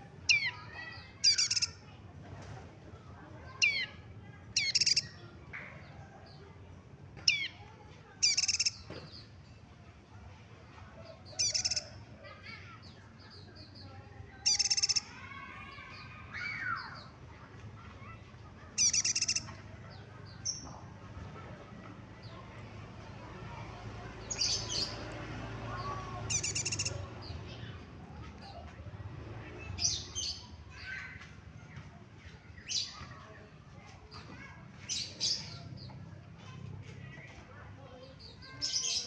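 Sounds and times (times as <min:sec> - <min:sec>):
songbird calling: 0:01.2 - 0:01.8, 0:03.6 - 0:03.9, 0:04.6 - 0:05.1, 0:07.3 - 0:07.6, 0:08.2 - 0:08.9, 0:11.3 - 0:11.9, 0:14.4 - 0:15.1, 0:18.8 - 0:19.6, 0:24.2 - 0:25.0, 0:25.8 - 0:27.1.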